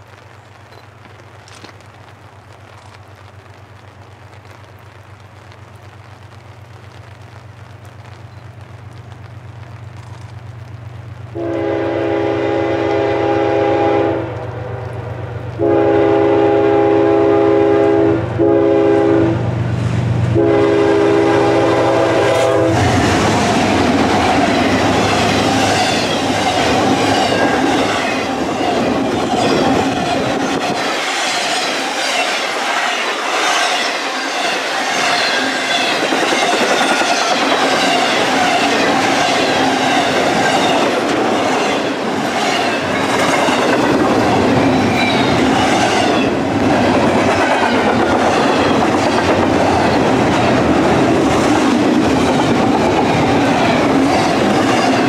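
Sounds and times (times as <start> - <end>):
locomotive horn blasts: 11.4 - 19.4, 20.3 - 23.1
train wheels clattering: 22.2 - 55.0.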